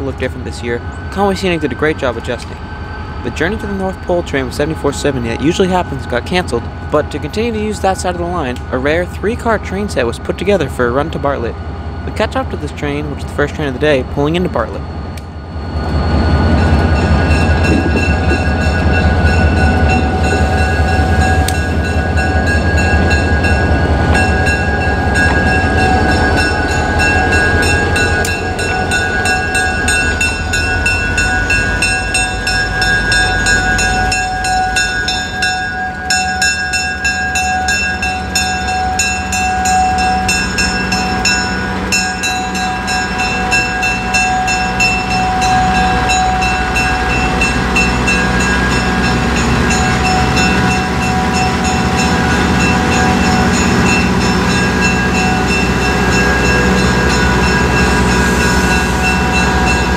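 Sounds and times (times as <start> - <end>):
locomotive engine rumble: 0.0 - 59.9
steady high-pitched tones: 0.0 - 59.9.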